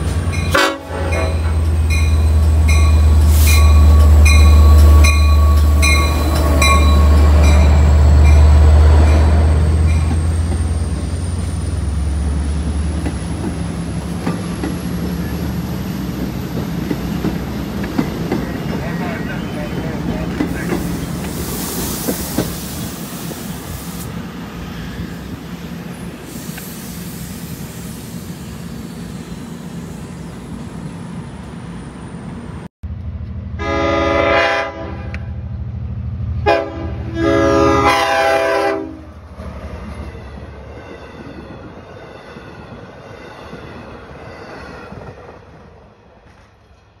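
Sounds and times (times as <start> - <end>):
train rumbling past: 0.0 - 47.0
train air horn blasts: 0.5 - 1.7, 33.6 - 35.3, 36.4 - 39.1.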